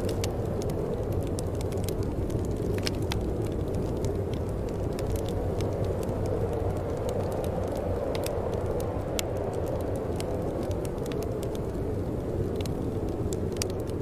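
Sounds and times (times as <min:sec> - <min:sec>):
fire crackles and pops: 0:00.0 - 0:14.0
rush of flame: 0:00.0 - 0:14.0.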